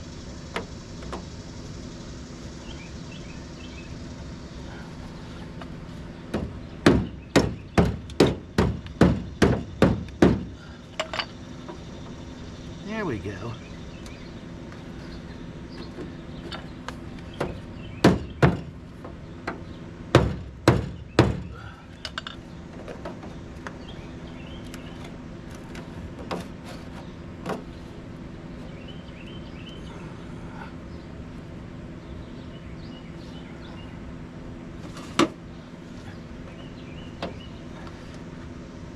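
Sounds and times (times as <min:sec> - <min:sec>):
steady hum: 0:00.0 - 0:38.9
knocks on sheet metal: 0:06.4 - 0:10.5, 0:18.0 - 0:18.7, 0:20.1 - 0:21.5.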